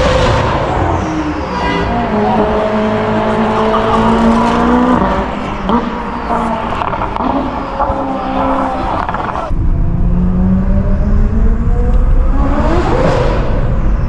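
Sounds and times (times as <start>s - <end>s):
sports car engine: 0.0s - 14.0s.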